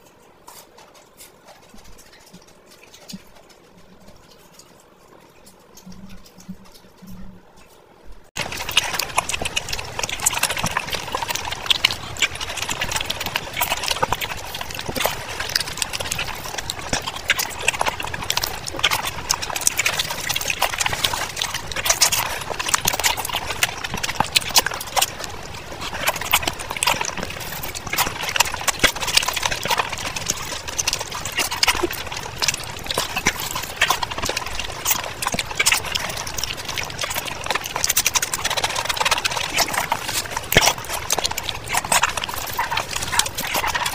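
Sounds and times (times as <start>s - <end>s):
wet chewing and lip smacks: 8.4s - 43.9s.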